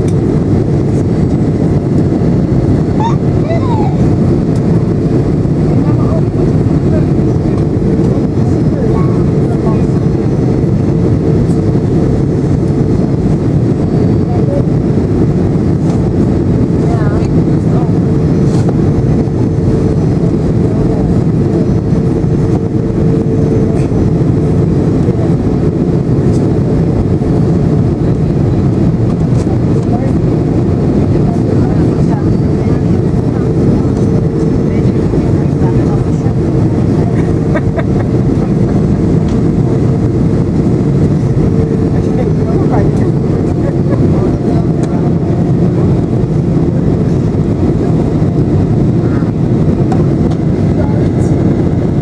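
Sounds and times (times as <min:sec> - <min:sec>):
air rushing past airplane cabin: 0:00.0 - 0:52.0
jet engines droning: 0:00.0 - 0:52.0.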